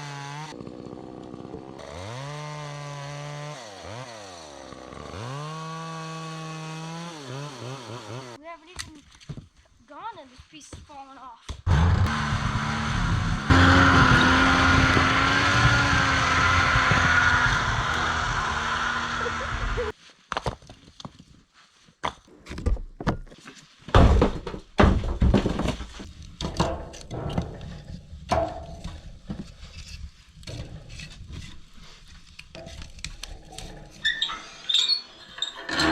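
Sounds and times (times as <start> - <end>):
engine running: 11.7 - 19.9
knocks thuds and cracks: 23.9 - 29.4.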